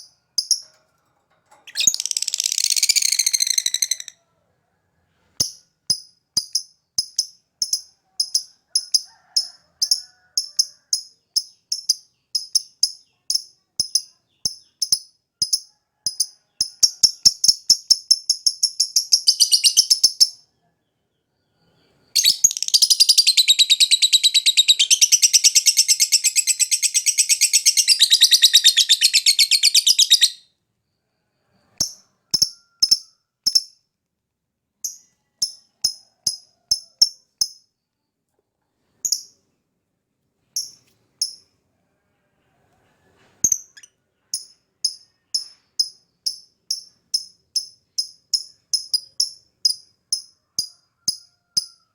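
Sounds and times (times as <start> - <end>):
lovebird chirping and trilling: 1.7 - 4.2, 17.0 - 20.4, 22.2 - 30.4, 43.4 - 45.6.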